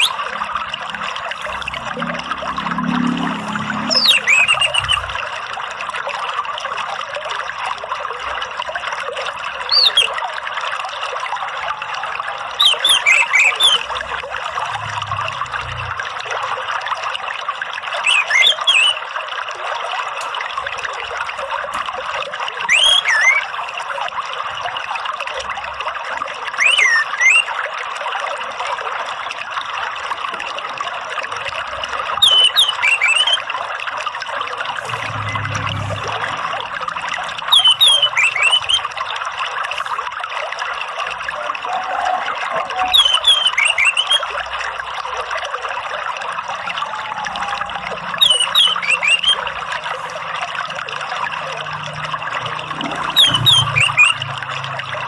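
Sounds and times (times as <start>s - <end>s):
thrush singing whistled phrases: 0.0s - 0.4s, 1.2s - 5.2s, 9.6s - 10.2s, 12.6s - 14.1s, 18.0s - 19.1s, 22.6s - 24.0s, 26.6s - 27.6s, 32.1s - 33.6s, 34.8s - 39.1s, 41.7s - 44.4s, 46.5s - 50.2s, 52.8s - 54.3s
water trickling: 0.0s - 55.0s.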